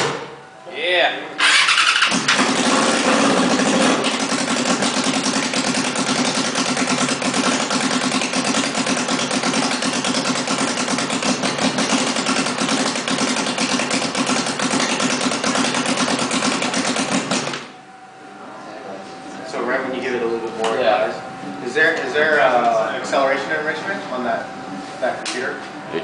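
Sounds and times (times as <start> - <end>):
race car engine running: 1.4 - 17.8.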